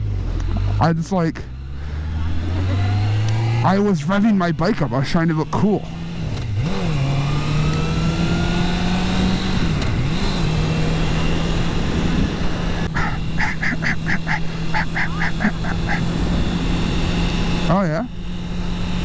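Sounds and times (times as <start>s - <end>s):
motorcycle engine cruising: 0.0s - 19.0s
wind rush on microphone: 11.2s - 13.4s
honk-like pulses: 13.0s - 16.2s.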